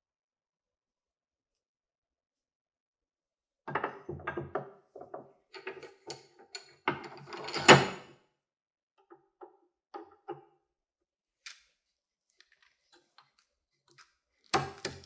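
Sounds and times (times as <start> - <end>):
parts clicking and clattering: 12.4 - 15.0.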